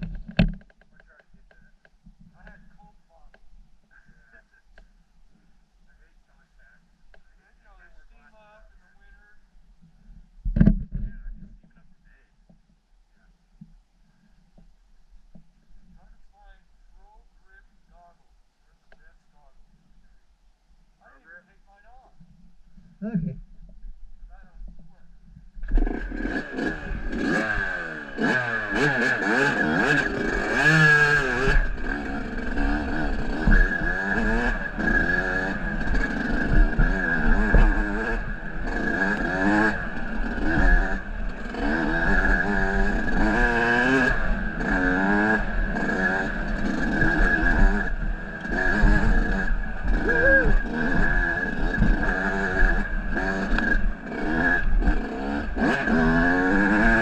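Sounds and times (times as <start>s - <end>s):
off-road vehicle engine revving: 25.6s - 57.0s.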